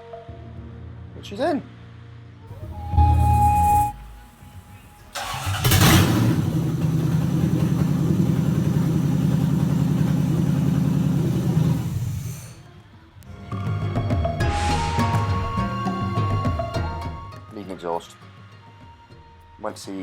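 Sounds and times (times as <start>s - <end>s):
car engine cranking and idling: 2.6s - 12.6s.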